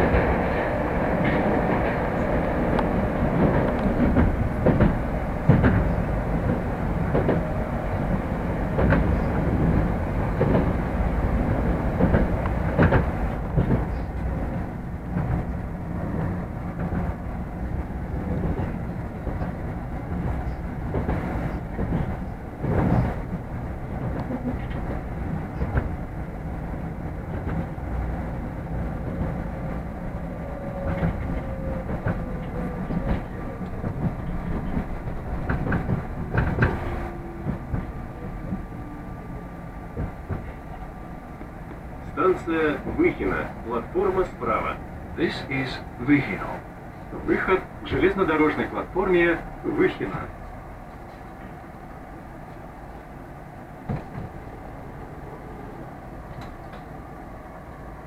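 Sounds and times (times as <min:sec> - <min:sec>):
faint train whine: 0:00.0 - 0:58.0
train rumbling on rails: 0:00.0 - 0:58.0.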